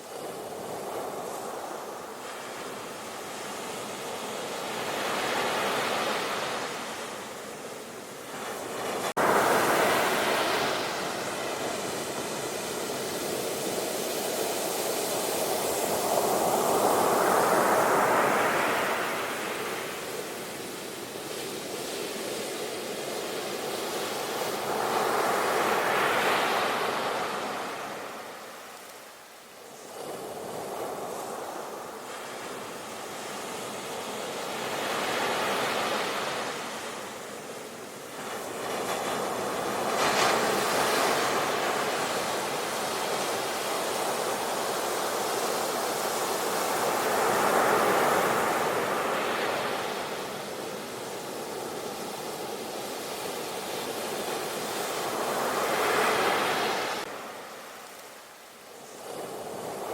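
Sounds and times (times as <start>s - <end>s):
ocean waves breaking: 8.2s - 20.8s.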